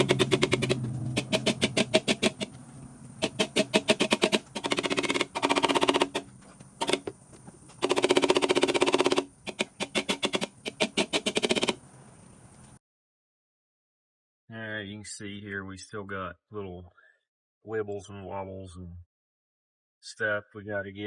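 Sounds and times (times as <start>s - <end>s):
rapid hammer taps on metal: 0.0s - 2.6s.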